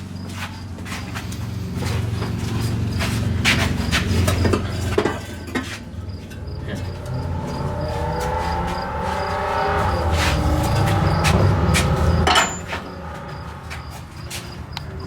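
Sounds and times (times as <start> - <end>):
pitched mechanical drone: 0.6 - 15.0.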